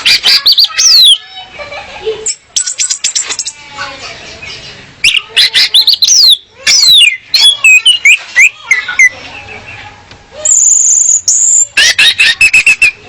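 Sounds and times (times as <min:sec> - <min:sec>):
thrush chirps and whistles: 0:10.4 - 0:11.7.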